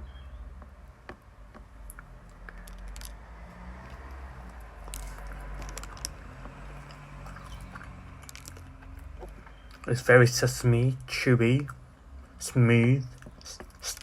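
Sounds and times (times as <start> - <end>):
person chewing wetly: 1.8 - 9.9.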